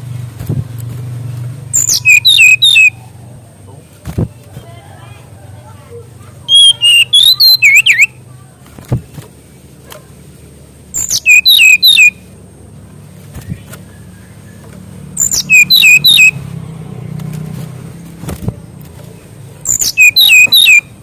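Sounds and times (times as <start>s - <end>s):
bird singing chirpy bursts: 1.6s - 3.2s, 6.4s - 8.3s, 10.8s - 12.4s, 13.4s - 16.6s, 19.6s - 21.0s.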